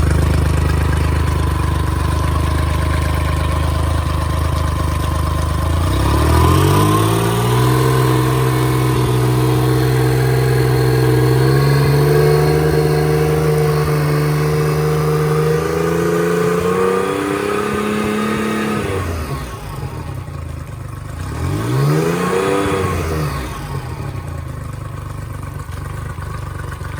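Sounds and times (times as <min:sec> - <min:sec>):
outboard motor running: 0:00.0 - 0:26.9.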